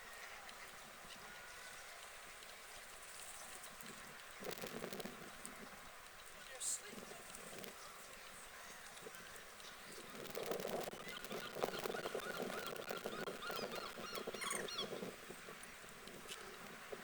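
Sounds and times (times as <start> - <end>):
waterfowl calling: 10.9 - 15.0.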